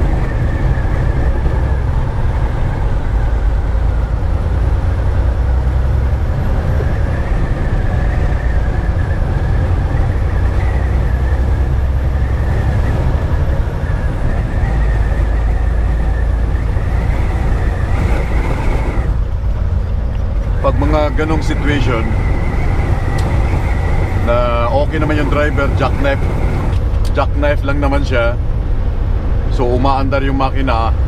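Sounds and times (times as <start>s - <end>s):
truck engine and road noise: 0.0s - 31.0s
faint high whine: 20.6s - 28.2s.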